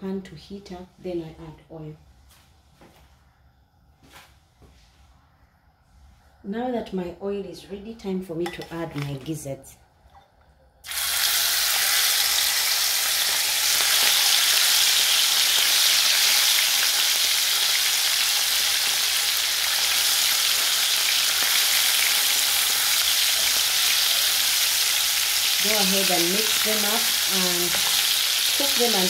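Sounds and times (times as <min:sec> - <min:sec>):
food sizzling in hot oil: 0:10.8 - 0:29.0
spatula stirring: 0:27.6 - 0:28.6.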